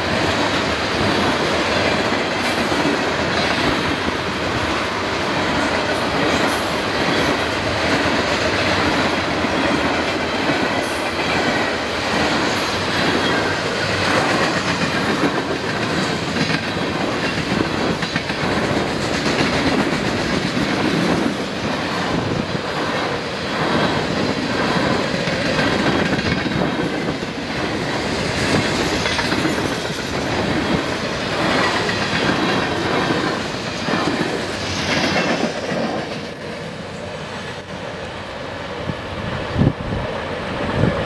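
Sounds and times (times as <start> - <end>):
wheels clacking over rail joints: 0.0 - 36.5
steel wheels rumbling on rail: 0.0 - 41.0.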